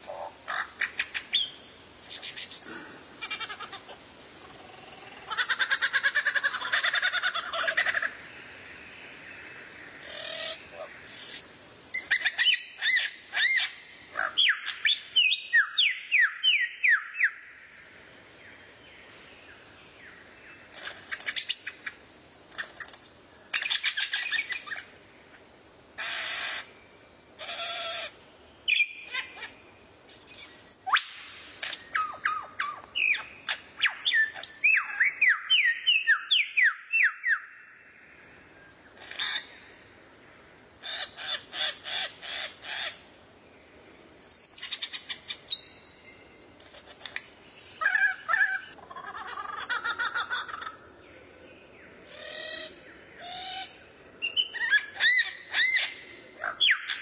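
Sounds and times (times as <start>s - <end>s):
harsh raspy bird calls: 0.0s - 1.4s, 10.0s - 14.8s, 26.0s - 26.7s, 39.0s - 39.6s, 40.8s - 43.0s, 47.8s - 50.8s
songbird whistled chirps: 30.1s - 31.3s, 44.2s - 46.0s.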